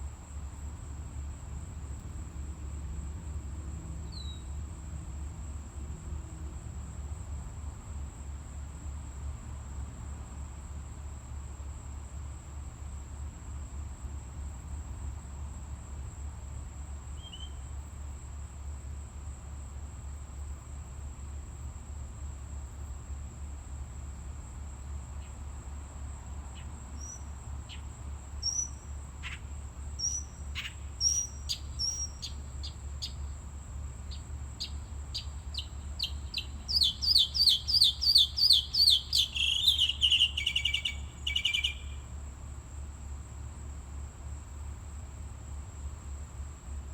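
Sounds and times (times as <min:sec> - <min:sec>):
high-pitched insect trill: 0:00.3 - 0:46.9
bird chirping: 0:04.0 - 0:04.6, 0:17.2 - 0:17.6, 0:26.5 - 0:33.3, 0:34.1 - 0:42.0.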